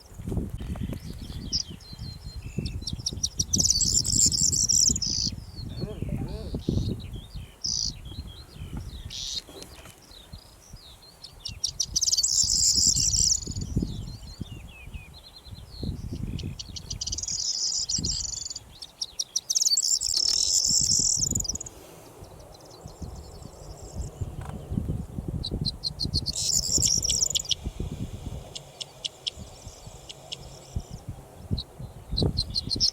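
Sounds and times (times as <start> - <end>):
wind rumble on microphone: 0.0 - 18.9, 20.0 - 32.9
bird singing jangling song: 1.0 - 8.3, 11.4 - 21.7, 25.5 - 27.7, 28.5 - 31.6.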